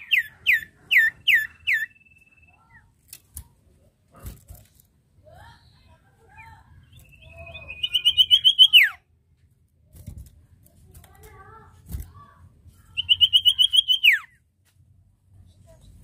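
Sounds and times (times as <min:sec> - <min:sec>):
bird whistle and trill call: 0:00.0 - 0:02.8, 0:06.9 - 0:09.0, 0:13.0 - 0:14.3
soft bird chattering: 0:00.0 - 0:02.9, 0:05.6 - 0:09.0, 0:12.9 - 0:14.3.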